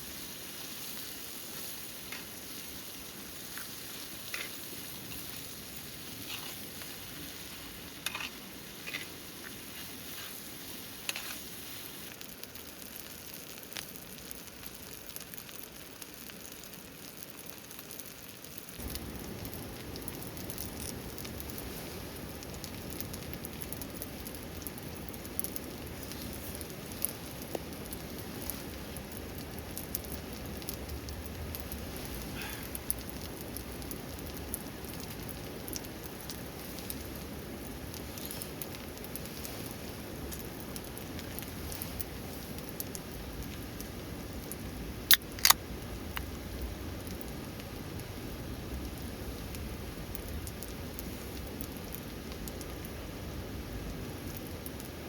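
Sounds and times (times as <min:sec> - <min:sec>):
steady rain falling: 0:00.0 - 0:55.0
sharp snaps: 0:45.1 - 0:45.6.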